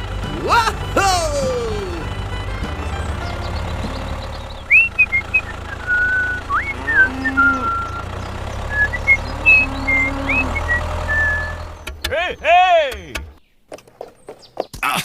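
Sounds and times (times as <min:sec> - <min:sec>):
low engine-like hum: 0:00.0 - 0:13.4
whistle-like notes and glides: 0:03.0 - 0:11.9.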